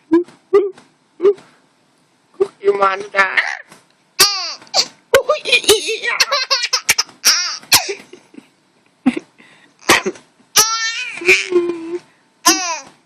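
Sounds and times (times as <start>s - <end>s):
baby laughing and squealing: 4.2s - 4.9s, 6.0s - 8.0s, 10.6s - 11.8s, 12.4s - 12.9s.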